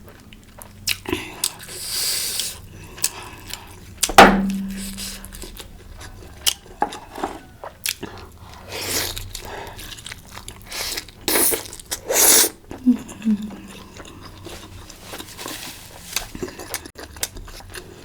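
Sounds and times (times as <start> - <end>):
chewing and biting food: 0.0 - 4.1, 5.3 - 18.0
loud ringing knock: 4.1 - 5.4.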